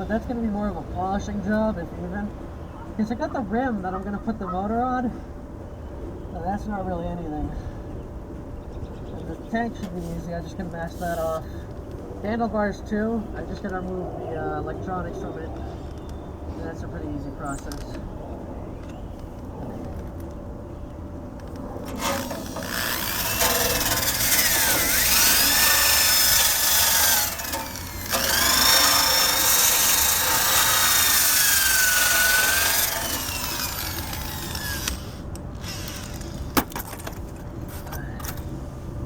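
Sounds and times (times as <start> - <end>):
drill wire brush scrubbing metal: 21.8 - 36.3.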